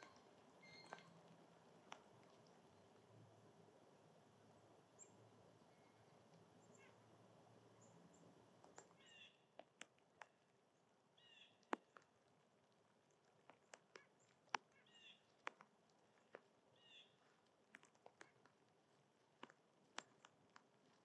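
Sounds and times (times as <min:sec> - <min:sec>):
scratchy bird calls: 0:00.0 - 0:01.2
small birds chirping: 0:00.0 - 0:03.2, 0:03.8 - 0:21.0.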